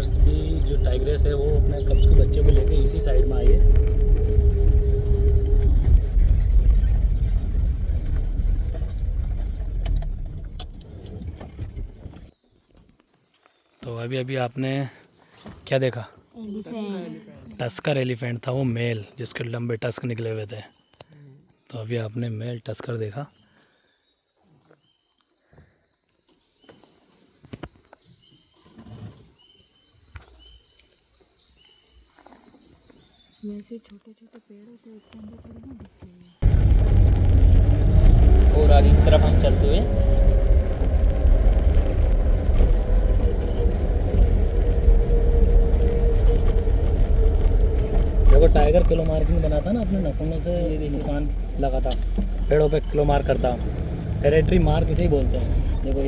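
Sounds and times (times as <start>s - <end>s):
vehicle engine and road rumble: 0.0s - 12.3s, 36.3s - 56.0s.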